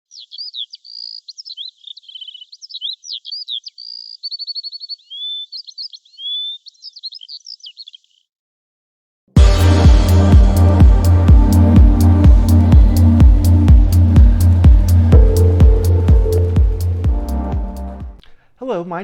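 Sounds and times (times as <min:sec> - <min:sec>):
songbird singing: 0:00.0 - 0:08.3, 0:11.4 - 0:17.9.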